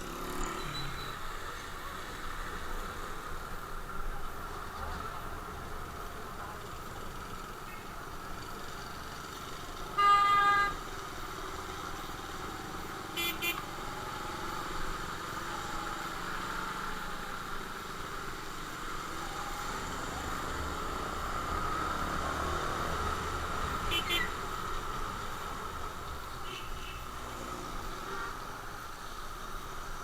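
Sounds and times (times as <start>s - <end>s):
road riding drone: 0.0s - 30.0s
vehicle horn honking: 10.0s - 10.8s, 13.1s - 13.7s, 23.8s - 24.4s, 26.4s - 27.1s.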